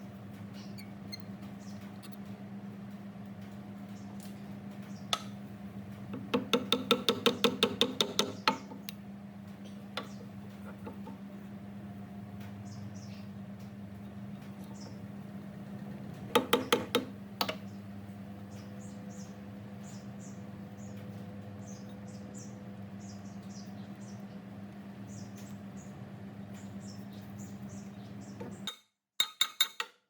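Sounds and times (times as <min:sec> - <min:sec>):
steady low hum: 0:00.0 - 0:28.7
sharp knocks: 0:16.3 - 0:17.6.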